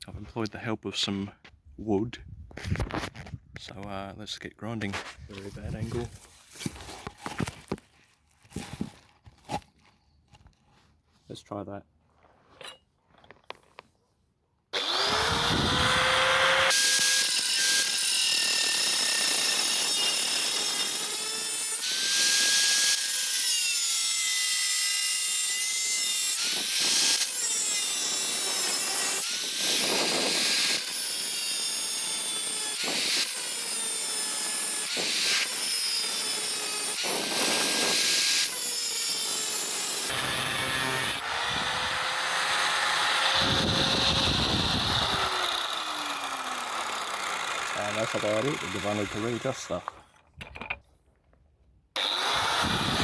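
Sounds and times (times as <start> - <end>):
angle grinder grinding steel: 14.8 - 50.1, 52.0 - 53.0.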